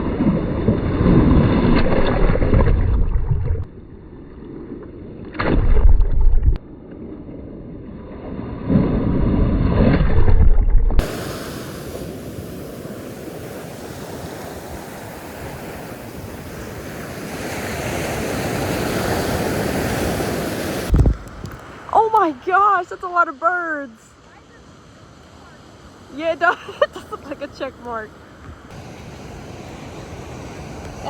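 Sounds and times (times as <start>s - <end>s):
wind buffeting microphone: 8.9s - 22.5s, 26.0s - 31.0s
ocean surf: 11.0s - 31.0s.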